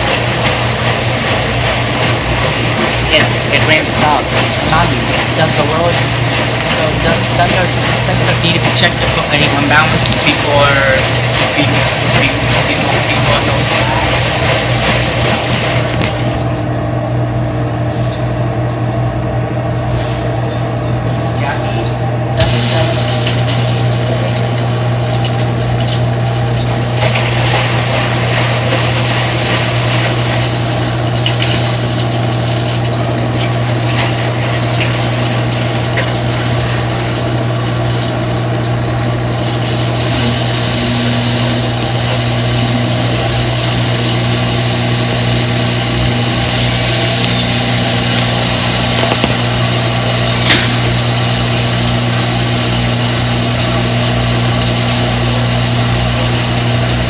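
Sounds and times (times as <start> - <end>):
washing machine motor hum: 0.0 - 57.0
higher machine tone: 22.1 - 57.0.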